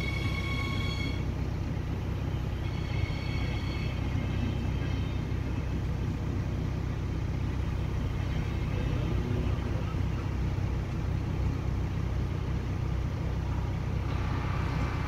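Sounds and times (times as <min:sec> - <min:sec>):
brief high whine: 0:00.0 - 0:01.2
train rolling by: 0:00.0 - 0:15.0.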